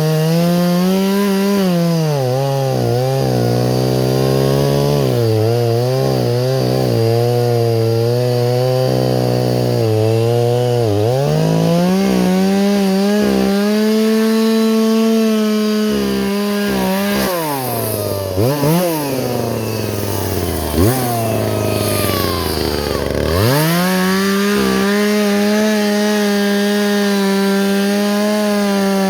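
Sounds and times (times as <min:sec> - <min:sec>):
chainsaw cutting wood: 0:00.0 - 0:29.0.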